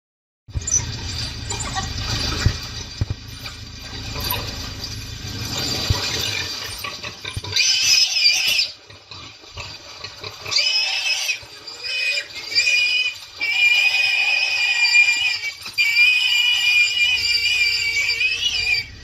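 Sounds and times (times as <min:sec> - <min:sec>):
low rumbling noise: 0:00.5 - 0:10.6, 0:11.4 - 0:19.0
animal squealing in distress: 0:05.8 - 0:08.8, 0:10.4 - 0:19.0.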